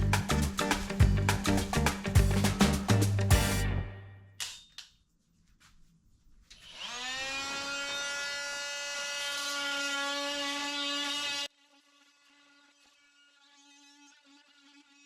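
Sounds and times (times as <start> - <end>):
background music: 0.0 - 4.4
power tool motor whine: 6.6 - 15.0.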